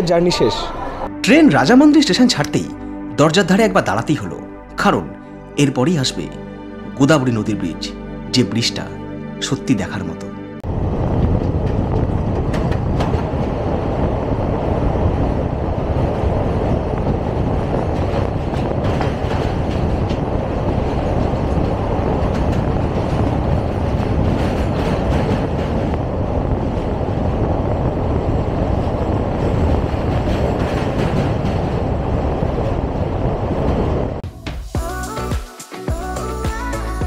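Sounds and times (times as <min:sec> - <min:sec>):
train wheels rumbling on track: 0:10.6 - 0:34.2.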